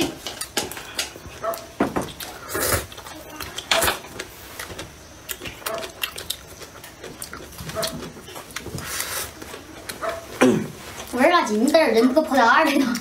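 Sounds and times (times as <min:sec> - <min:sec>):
chewing crunchy food: 0:00.0 - 0:12.1.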